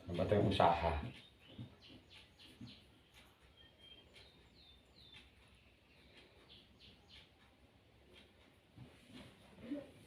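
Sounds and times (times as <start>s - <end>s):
faint bird chirps: 0.2s - 7.6s.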